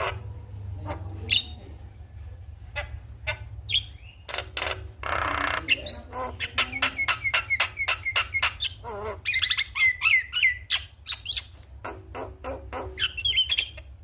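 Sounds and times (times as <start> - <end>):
myna bird calling: 0.0 - 1.8, 2.7 - 14.0.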